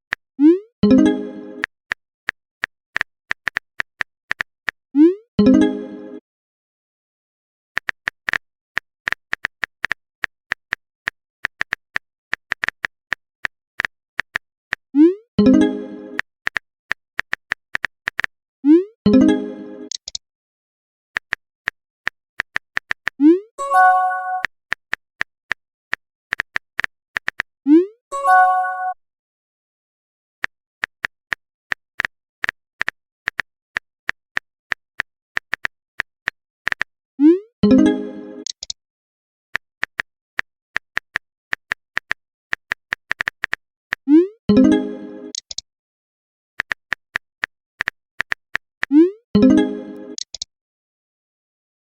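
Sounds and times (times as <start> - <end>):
phone keyboard typing taps: 2.3 - 4.5, 7.8 - 10.8, 19.9 - 20.2, 21.2 - 23.2, 30.8 - 36.9, 38.4 - 38.8, 40.8 - 44.0, 45.3 - 45.6, 46.6 - 50.5.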